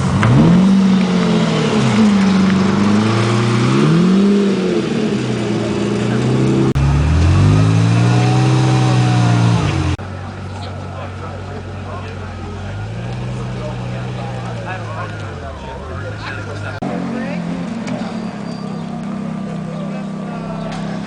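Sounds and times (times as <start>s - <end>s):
sports car engine revving: 0.0s - 10.6s, 11.5s - 21.0s.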